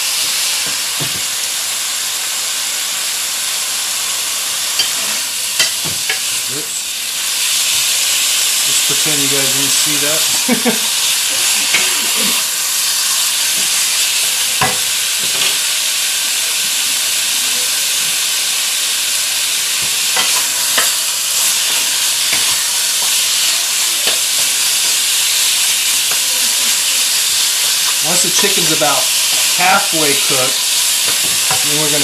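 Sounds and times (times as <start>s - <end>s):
chicken sizzling in hot oil: 0.0s - 32.0s.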